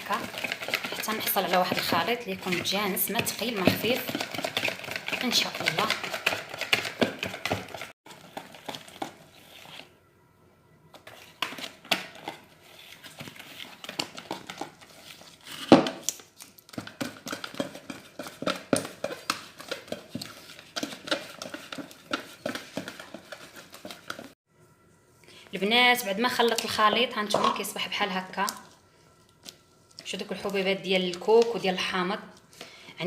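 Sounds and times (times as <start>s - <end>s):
utensil scraping batter in bowl: 0.0s - 9.9s, 16.9s - 24.4s.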